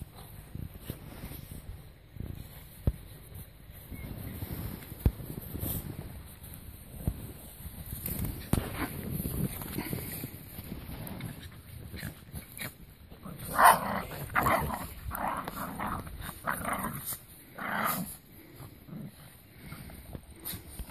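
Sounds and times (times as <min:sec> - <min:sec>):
dog growling and barking: 0:11.1 - 0:20.0.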